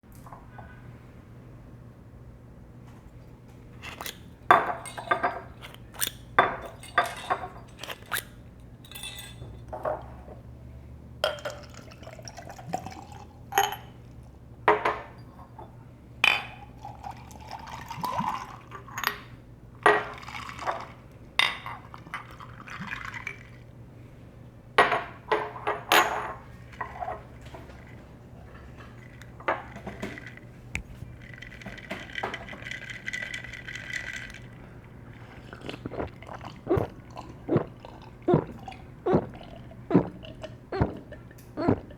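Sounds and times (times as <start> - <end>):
drink pouring into a glass: 3.8 - 9.4, 11.3 - 13.8, 16.8 - 19.0, 21.7 - 23.7, 26.8 - 41.9
ice clinking against glass: 3.8 - 10.0, 11.2 - 14.0, 28.7 - 41.8.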